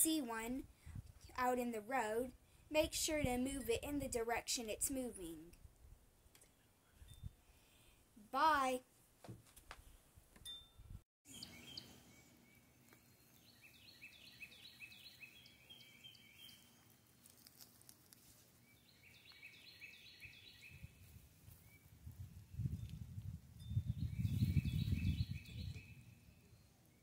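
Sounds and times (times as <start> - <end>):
small bird singing: 11.3 - 17.6, 18.6 - 23.0, 23.6 - 27.0.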